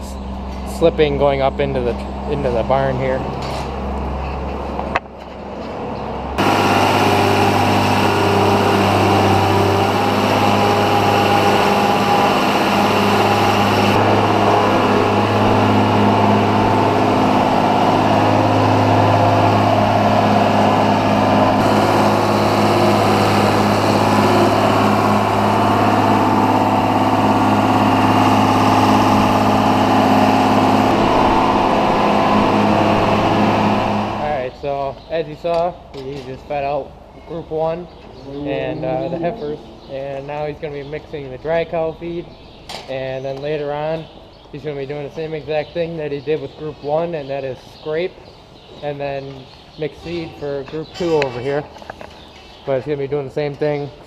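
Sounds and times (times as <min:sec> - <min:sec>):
engine droning under load: 0:00.0 - 0:35.9.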